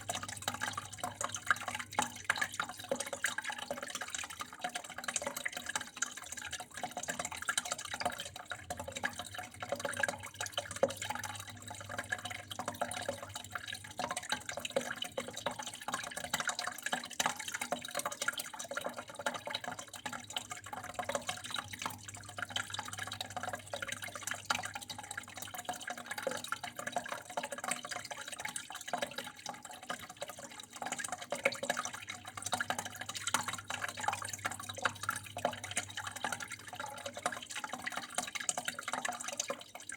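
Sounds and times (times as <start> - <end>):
water flowing and trickling: 0.0 - 39.9.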